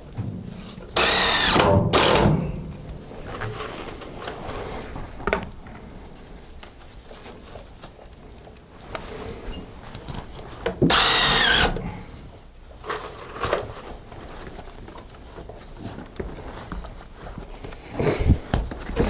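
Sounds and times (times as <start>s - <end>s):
knocks and handling of wood: 0.0s - 19.0s
cordless drill driving screws: 0.5s - 3.5s, 10.8s - 12.0s.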